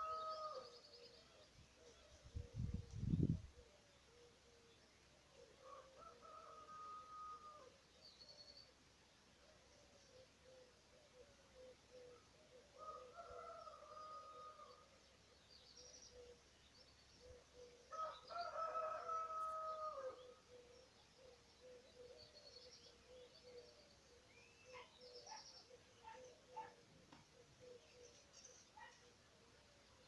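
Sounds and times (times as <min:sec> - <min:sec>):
small birds chirping in trills: 0:07.8 - 0:30.0.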